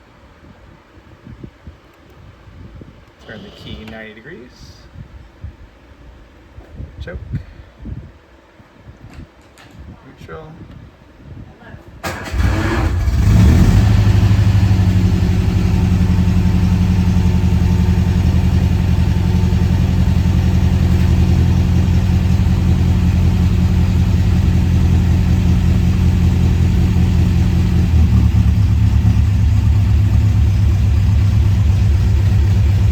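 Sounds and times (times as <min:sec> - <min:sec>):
car engine starting and idling: 0:12.0 - 0:32.9.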